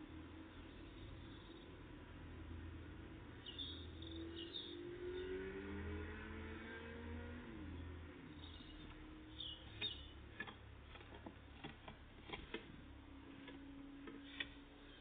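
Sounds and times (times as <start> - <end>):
birds pecking at feeder: 8.4 - 15.0.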